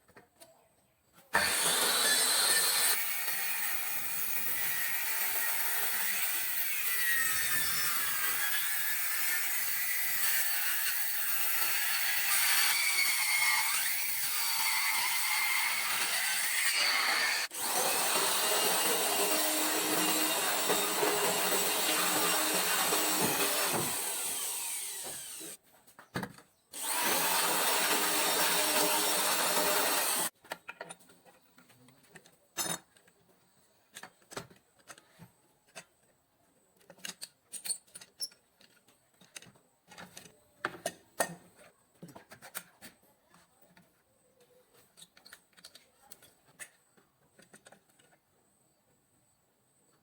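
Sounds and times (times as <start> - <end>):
electric circular saw running: 1.4 - 5.6, 11.3 - 25.6, 26.8 - 30.3.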